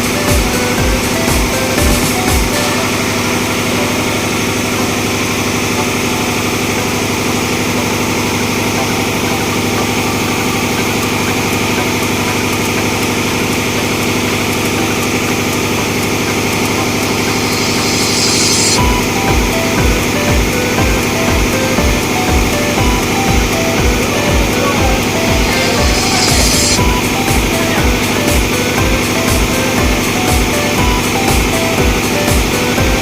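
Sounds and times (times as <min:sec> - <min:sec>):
engine-room machinery drone: 0:00.0 - 0:33.0.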